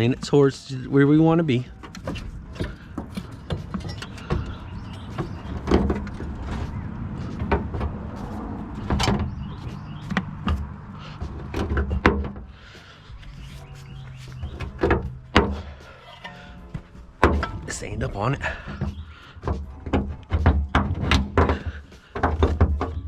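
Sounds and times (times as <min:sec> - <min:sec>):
pry bar clanking on metal: 0:01.7 - 0:06.3, 0:14.5 - 0:19.0.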